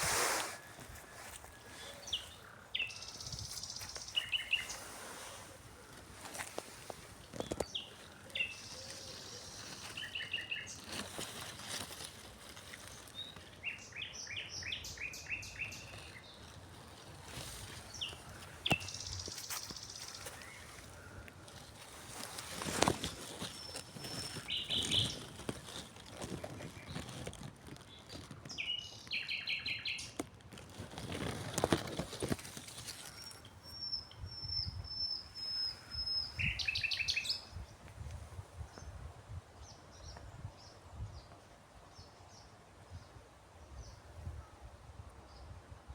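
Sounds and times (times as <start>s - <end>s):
rustling on microphone: 0.0s - 39.3s
songbirds chirping: 0.2s - 45.6s.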